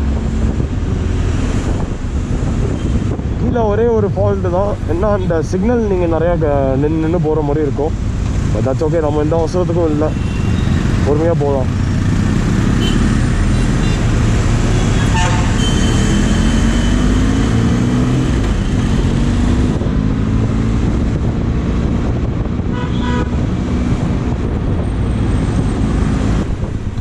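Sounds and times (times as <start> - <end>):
wind and road noise: 0.0 - 27.0
motorcycle engine revving: 9.9 - 24.6
vehicle horns honking: 10.1 - 10.8, 12.8 - 14.1, 14.7 - 17.2, 22.7 - 23.4.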